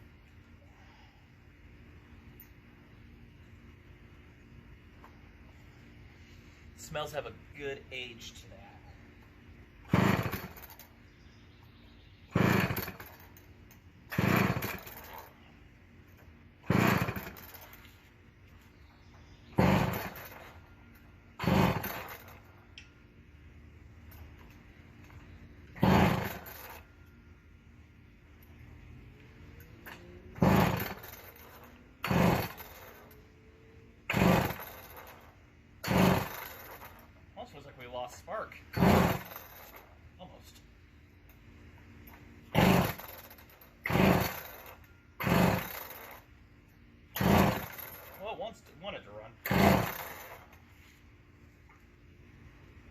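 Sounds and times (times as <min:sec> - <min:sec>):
chainsaw engine turning over: 0:09.8 - 0:11.0, 0:12.3 - 0:15.5, 0:16.6 - 0:18.0, 0:19.5 - 0:20.8, 0:21.4 - 0:22.6, 0:24.1 - 0:27.1, 0:29.6 - 0:33.3, 0:34.0 - 0:37.2, 0:38.6 - 0:40.0, 0:42.1 - 0:46.4, 0:47.1 - 0:48.6, 0:49.4 - 0:50.7
chainsaw recoil starter pulls: 0:09.9 - 0:11.0, 0:12.3 - 0:13.5, 0:14.1 - 0:15.4, 0:16.6 - 0:18.0, 0:19.5 - 0:20.7, 0:21.4 - 0:22.6, 0:24.1 - 0:26.9, 0:29.6 - 0:33.2, 0:34.1 - 0:37.2, 0:38.5 - 0:40.0, 0:42.1 - 0:46.3, 0:47.1 - 0:48.6, 0:49.4 - 0:50.7.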